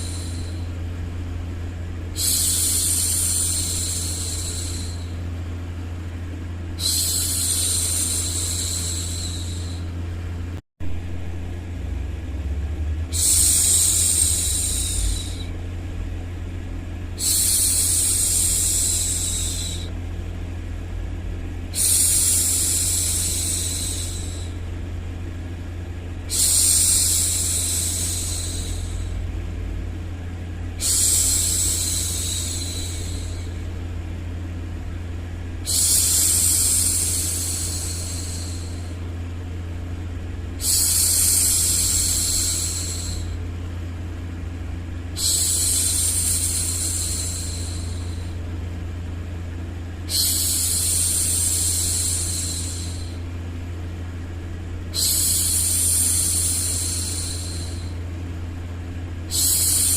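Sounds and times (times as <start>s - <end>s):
low rumbling white noise: 0.0s - 59.9s
woman shushing: 6.8s - 9.9s, 13.1s - 15.6s, 30.8s - 33.6s, 50.1s - 53.2s, 54.9s - 58.0s.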